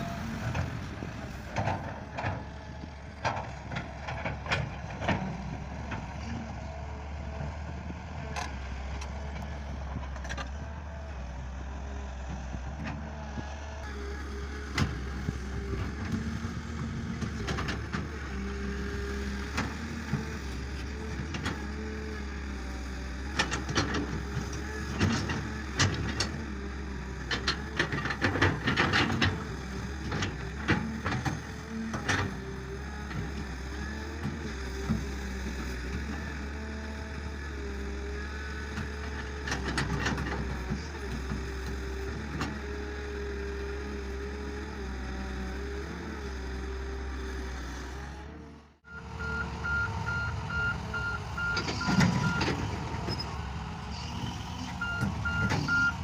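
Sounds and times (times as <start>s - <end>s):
tractor engine running: 0.0s - 56.0s
reversing beeper: 48.9s - 52.5s.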